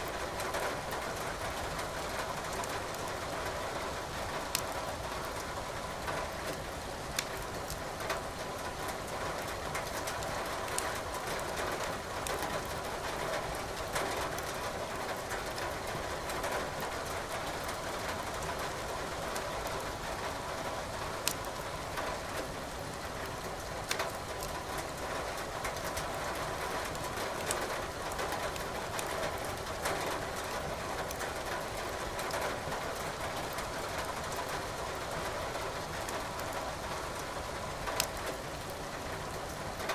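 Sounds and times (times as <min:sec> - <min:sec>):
logs crackling in a fireplace: 0:04.2 - 0:05.6, 0:06.3 - 0:15.5, 0:21.2 - 0:22.2, 0:23.2 - 0:26.0, 0:26.6 - 0:35.4, 0:37.2 - 0:39.9.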